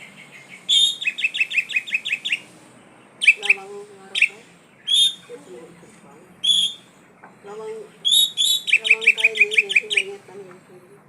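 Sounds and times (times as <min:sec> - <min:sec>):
bird singing sharp high notes: 0:00.0 - 0:02.5, 0:03.2 - 0:05.3, 0:06.4 - 0:07.0, 0:08.0 - 0:10.2.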